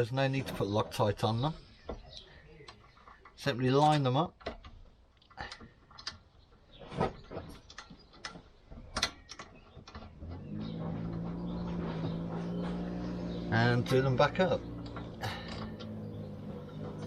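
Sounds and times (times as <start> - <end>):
metal clicks and knocks: 2.6 - 6.4, 7.1 - 17.0
steady motor hum: 10.3 - 17.0.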